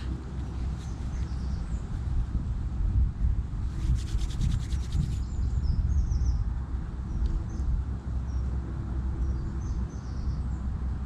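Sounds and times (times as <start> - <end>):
small birds chirping: 0.0 - 2.1, 9.2 - 10.8
wind rumble on microphone: 0.0 - 11.0
rasping strokes: 3.7 - 5.2.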